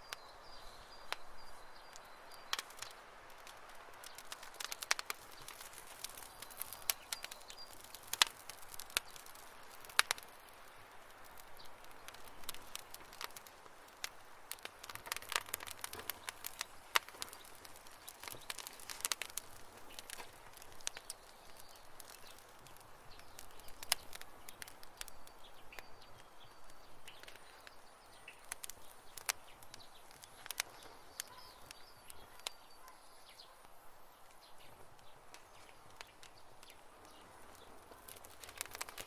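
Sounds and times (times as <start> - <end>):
campfire crackling and popping: 0.0 - 39.0
soft hiss: 0.0 - 39.0
faint high chirps: 30.0 - 33.7.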